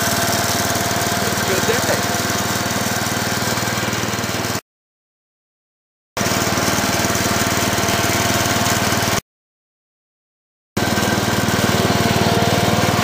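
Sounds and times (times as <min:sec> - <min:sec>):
small engine puttering: 0:00.0 - 0:04.6, 0:06.2 - 0:09.2, 0:10.8 - 0:13.0.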